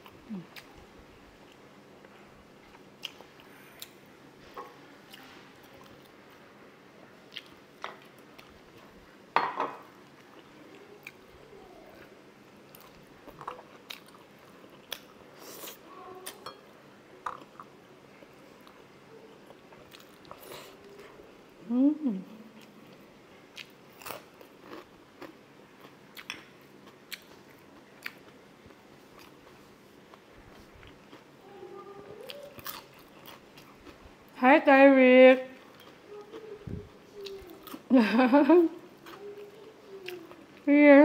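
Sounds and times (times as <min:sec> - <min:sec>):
chewing food: 0:07.3 - 0:09.0, 0:10.0 - 0:16.6, 0:19.4 - 0:21.2, 0:22.6 - 0:31.4, 0:32.1 - 0:34.4, 0:35.6 - 0:38.1.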